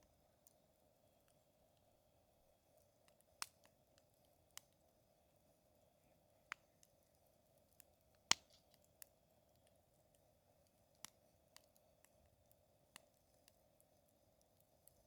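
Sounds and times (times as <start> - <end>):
campfire crackling and popping: 2.7 - 4.9, 6.4 - 15.0.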